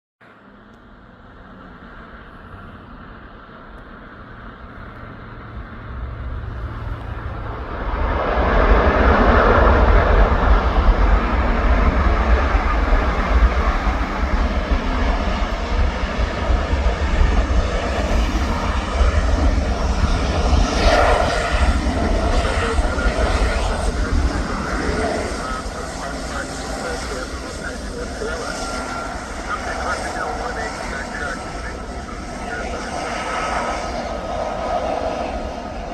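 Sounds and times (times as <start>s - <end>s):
light aircraft engine: 0.2s - 35.9s.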